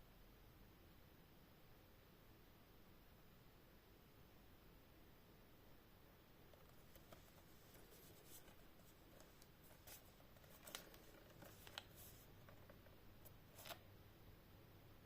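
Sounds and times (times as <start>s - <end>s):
low room hum: 0.0s - 15.0s
packaging rustles and clicks: 6.5s - 13.8s.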